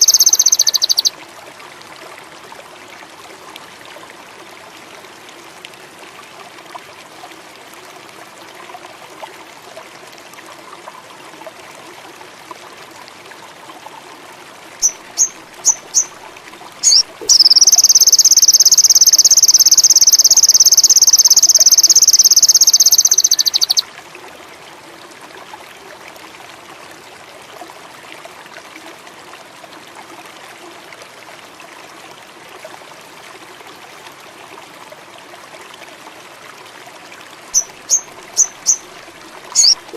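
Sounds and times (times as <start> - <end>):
bird fast high trill: 0.0 - 1.1, 16.8 - 23.8, 39.6 - 39.8
bird high sharp notes: 0.0 - 1.1
babbling stream: 0.0 - 39.9.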